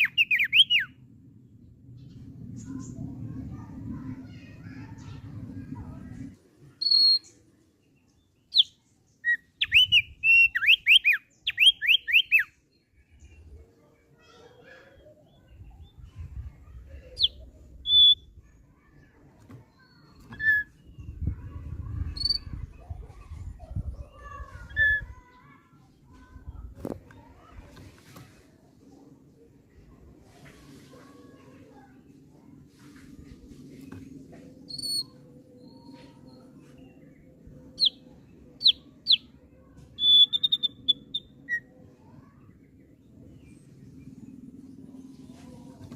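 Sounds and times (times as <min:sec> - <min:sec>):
bird singing whistled notes: 0:00.0 - 0:01.0, 0:06.8 - 0:07.3, 0:08.5 - 0:12.6, 0:17.2 - 0:18.3, 0:38.6 - 0:39.3, 0:40.0 - 0:41.7.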